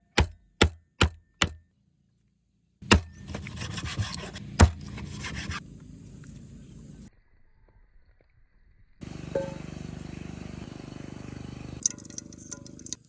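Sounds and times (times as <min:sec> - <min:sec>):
scraping and rubbing on wood: 0:03.2 - 0:05.6.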